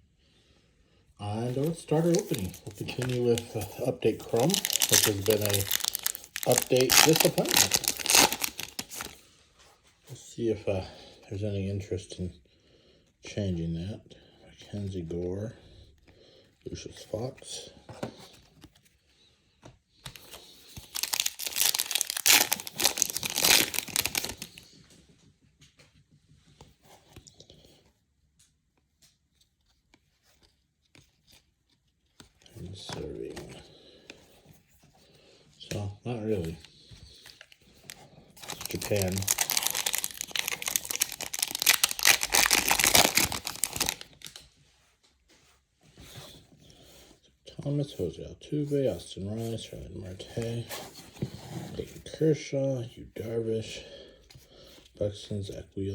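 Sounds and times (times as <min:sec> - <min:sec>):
wrapper tearing and crinkling: 0:01.5 - 0:09.2, 0:20.1 - 0:24.6, 0:37.3 - 0:44.4.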